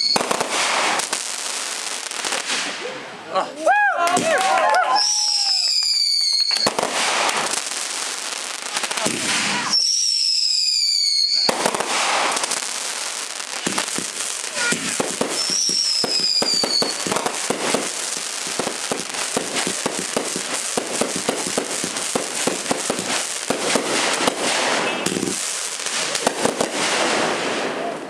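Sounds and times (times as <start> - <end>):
firework whistle: 0.0 - 1.0, 4.9 - 7.4, 9.1 - 12.4, 14.5 - 17.8, 24.0 - 25.4
fireworks cracking and popping: 0.0 - 3.0, 4.0 - 28.0.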